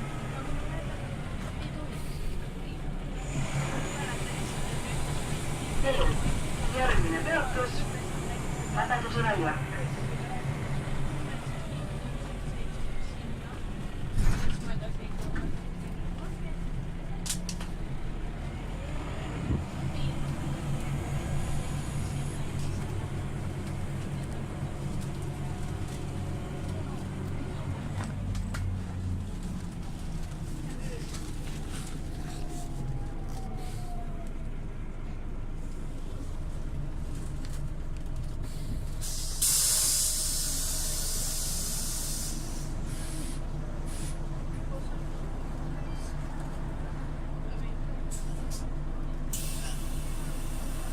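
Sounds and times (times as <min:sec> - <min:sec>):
bus diesel engine running: 0:00.0 - 0:50.9
road noise: 0:00.0 - 0:50.9
bus bump: 0:14.0 - 0:16.3
compressed air blast hissing: 0:39.0 - 0:44.2.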